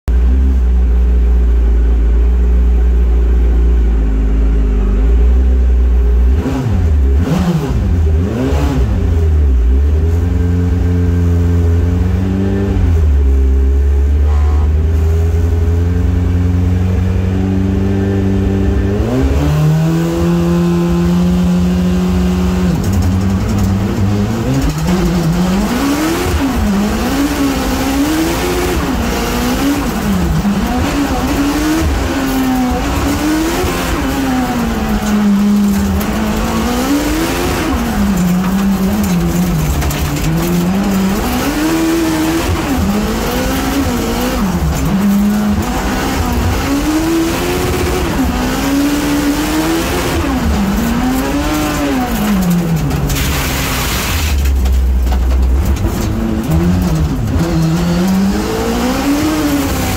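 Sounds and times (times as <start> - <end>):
rally car engine revving: 0.0 - 59.9
tyres rushing on gravel: 22.4 - 59.9.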